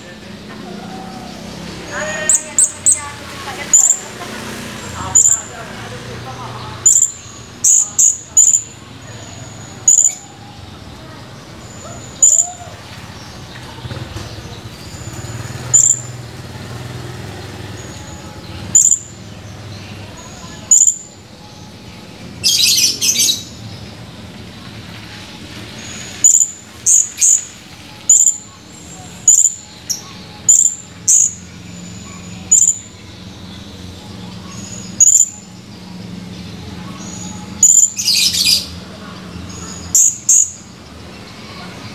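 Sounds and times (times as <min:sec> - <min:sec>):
parrot chirping: 0:00.0 - 0:04.2, 0:04.8 - 0:05.7, 0:06.4 - 0:10.4, 0:11.6 - 0:12.8, 0:15.1 - 0:16.2, 0:17.8 - 0:19.2, 0:20.4 - 0:21.1, 0:22.4 - 0:23.6, 0:26.1 - 0:33.0, 0:34.5 - 0:35.4, 0:36.9 - 0:38.7, 0:39.6 - 0:40.7.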